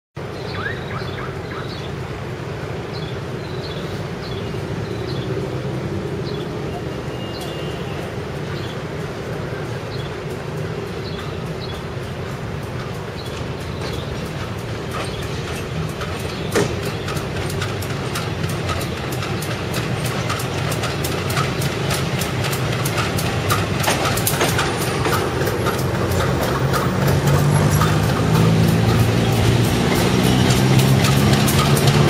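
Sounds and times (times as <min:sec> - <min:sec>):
train rumble: 0:00.2 - 0:32.0
train wheels clicking over rail joints: 0:02.2 - 0:32.0
low engine hum: 0:10.3 - 0:32.0.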